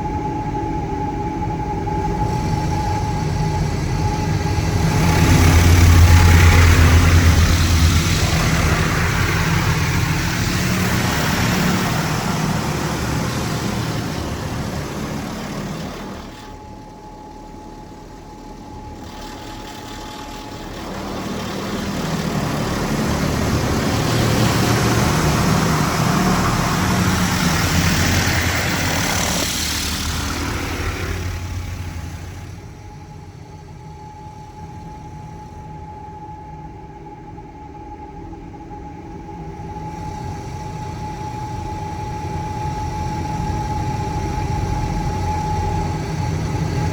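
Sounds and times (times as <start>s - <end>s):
low motor hum: 0.0s - 36.0s
car wash spray hissing: 2.0s - 32.7s.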